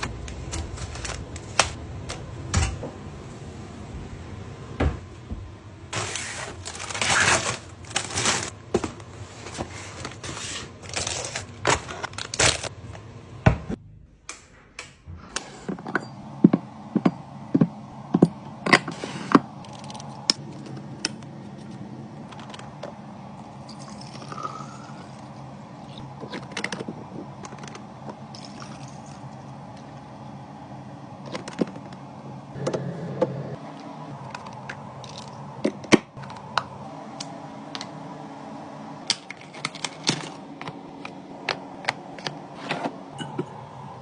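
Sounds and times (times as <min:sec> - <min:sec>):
plastic packaging crinkling: 0:06.0 - 0:08.6, 0:10.0 - 0:12.7.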